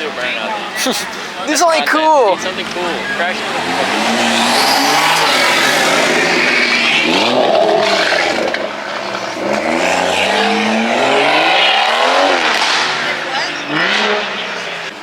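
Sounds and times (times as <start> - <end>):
car engine accelerating hard: 2.4 - 15.0
rush of noise: 3.4 - 13.8.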